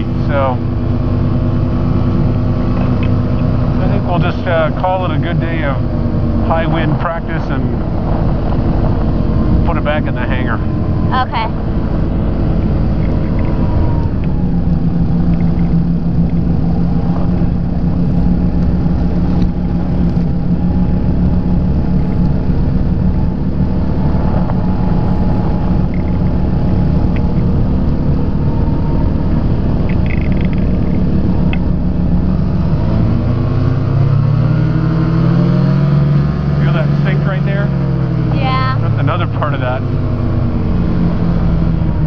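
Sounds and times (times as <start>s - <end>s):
two-stroke aircraft engine: 0.0s - 42.0s
wind rush: 5.7s - 34.2s.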